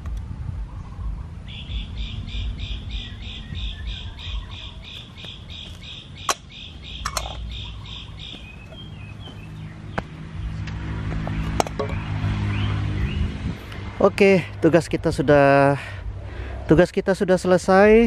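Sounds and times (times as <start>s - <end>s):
steady low rumble: 0.0s - 18.0s
bird calling rapid repeated notes: 0.7s - 9.9s.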